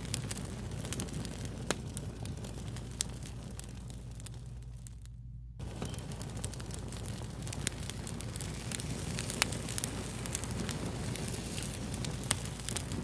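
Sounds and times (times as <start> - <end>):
fire crackling: 0.0 - 13.0.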